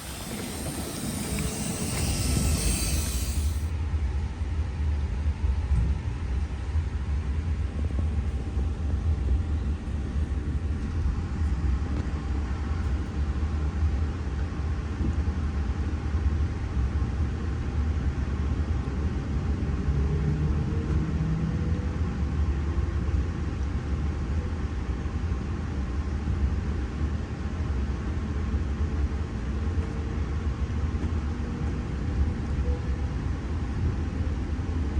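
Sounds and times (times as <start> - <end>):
electric train running on track: 0.0 - 3.7.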